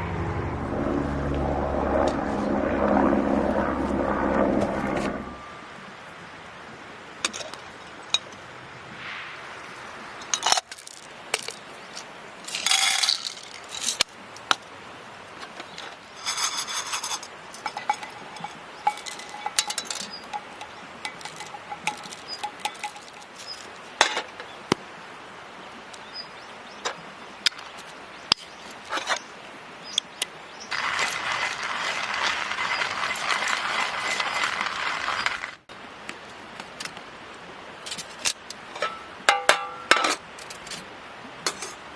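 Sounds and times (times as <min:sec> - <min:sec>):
steady rushing hiss: 0:08.4 - 0:39.3.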